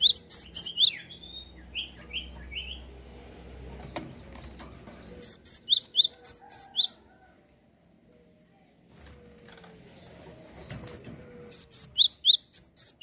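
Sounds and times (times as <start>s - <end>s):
songbird singing high chirps: 0.0s - 2.9s, 5.0s - 7.2s, 11.0s - 13.0s.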